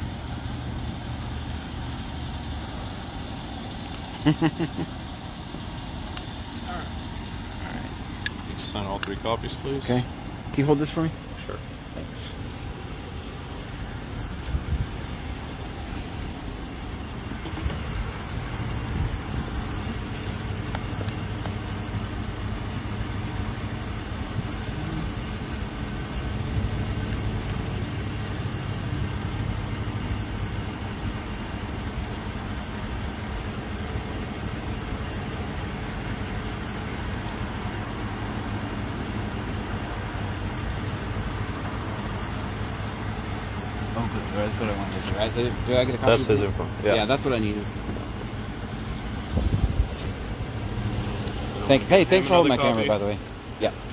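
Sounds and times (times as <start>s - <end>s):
vehicle engine idling: 0.0s - 53.9s.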